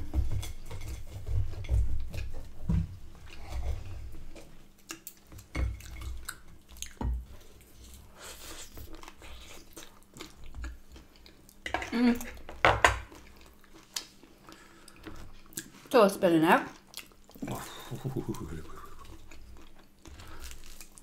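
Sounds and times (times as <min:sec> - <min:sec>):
chewing and biting sandwich: 0:01.0 - 0:11.6, 0:16.8 - 0:21.0.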